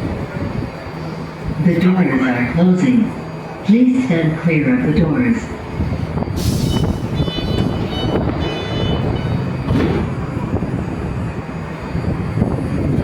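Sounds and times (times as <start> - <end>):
train rumbling on rails: 0.0 - 13.0.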